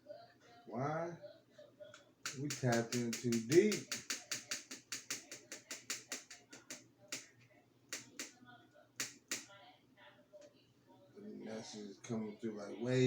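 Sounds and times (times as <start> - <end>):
rapid sharp clicks: 2.2 - 8.4, 9.0 - 9.5.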